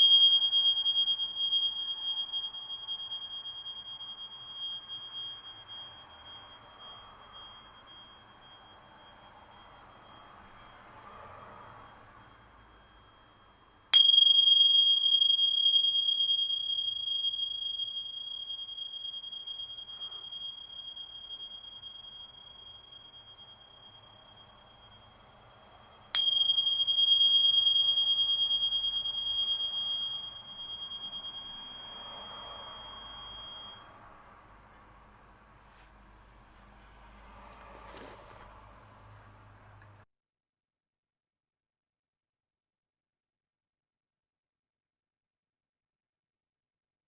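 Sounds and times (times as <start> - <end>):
small hand cymbals ringing: 0.0 - 36.0.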